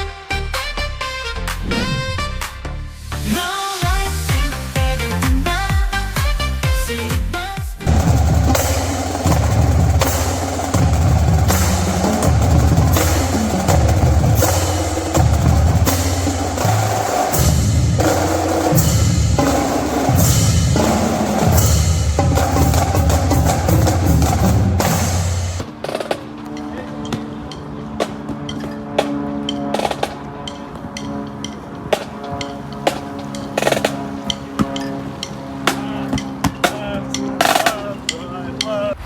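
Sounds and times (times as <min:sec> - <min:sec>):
deep bass drum hits: 0:07.8 - 0:25.7
marching drumline cadence: 0:07.8 - 0:39.0.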